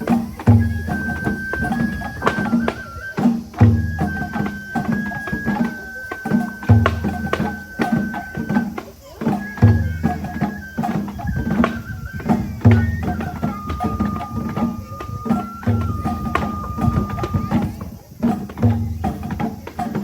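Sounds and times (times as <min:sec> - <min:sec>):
bamboo flute: 0:00.0 - 0:20.0
taiko drums beating: 0:00.0 - 0:20.0.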